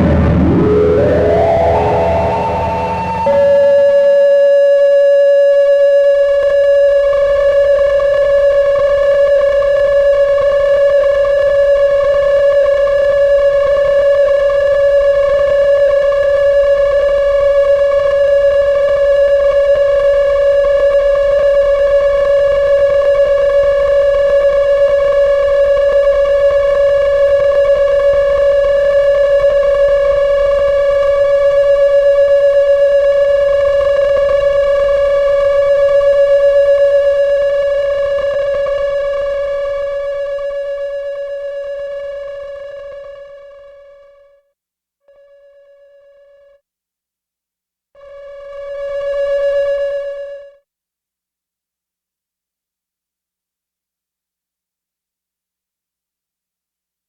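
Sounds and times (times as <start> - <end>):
low rumble: 0.0 - 4.1
synthesizer steady note: 0.0 - 4.5.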